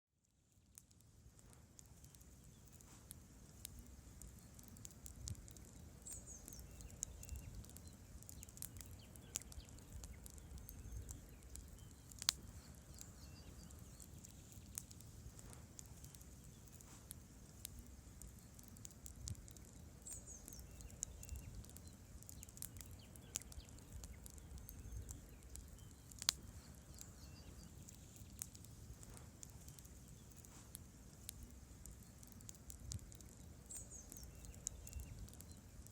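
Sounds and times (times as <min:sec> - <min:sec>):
wood crackling and popping: 0:00.2 - 0:35.9
low rumble of flames: 0:00.5 - 0:35.9.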